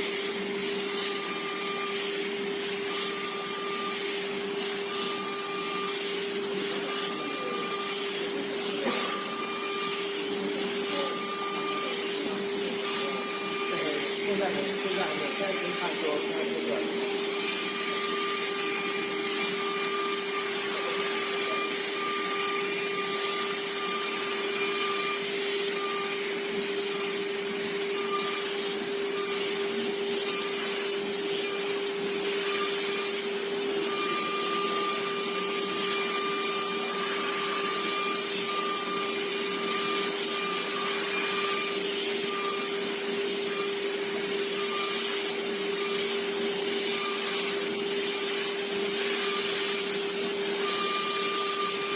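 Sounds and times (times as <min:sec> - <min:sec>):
high-pitched whine: 0:00.0 - 0:29.5
cnc machine motor whine: 0:00.0 - 0:51.9.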